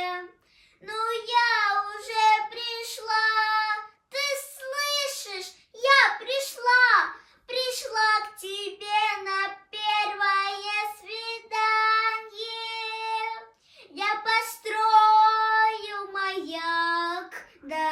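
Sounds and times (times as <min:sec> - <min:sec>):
child singing: 0:00.0 - 0:17.9.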